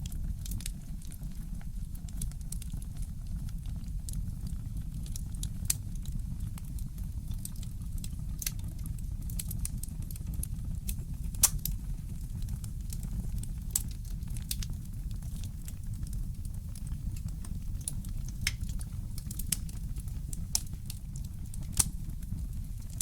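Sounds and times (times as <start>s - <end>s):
low steady rumble: 0.0s - 23.0s
wood fire crackling: 0.0s - 23.0s
sharp pops and snaps: 10.9s - 23.0s.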